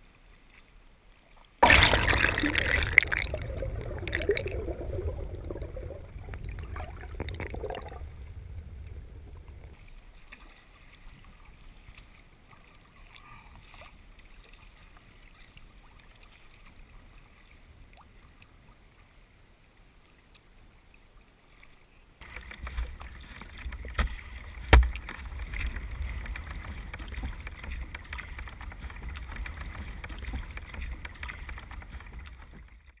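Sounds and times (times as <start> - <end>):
kayak paddling in water: 0.0 - 33.0
small splashes and clicks: 0.5 - 18.5, 20.2 - 33.0
low rumble: 1.6 - 9.8, 22.6 - 32.7
sharp knocks: 24.7 - 25.1.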